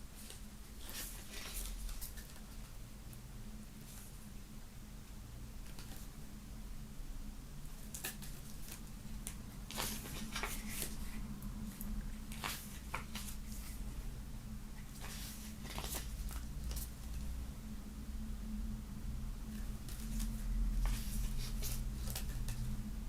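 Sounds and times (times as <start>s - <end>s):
steady low hum: 0.0s - 23.0s
paper and cardboard rustling: 0.2s - 2.7s, 7.8s - 13.9s, 14.8s - 17.2s, 19.6s - 22.7s.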